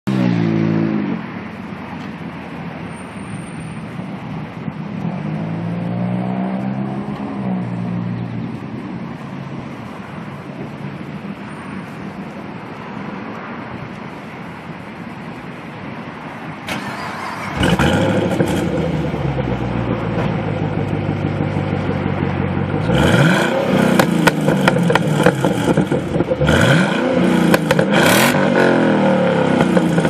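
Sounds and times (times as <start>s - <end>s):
supercharged car engine: 16.7s - 30.0s.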